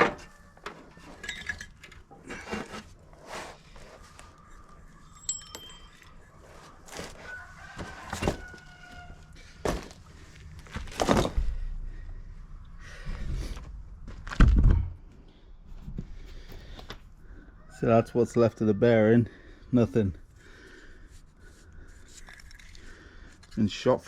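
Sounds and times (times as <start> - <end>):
metal tools clinking and scraping: 0.0 - 2.9, 5.0 - 7.2.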